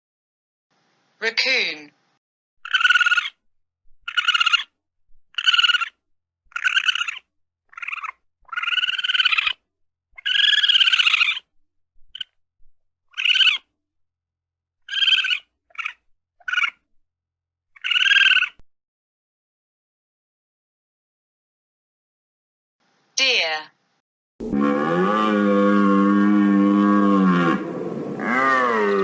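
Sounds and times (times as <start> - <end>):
raccoon high-pitched cries: 2.6 - 3.4, 4.0 - 4.7, 5.3 - 9.6, 10.2 - 11.5, 12.1 - 12.4, 13.1 - 13.7, 14.8 - 16.8, 17.8 - 18.6.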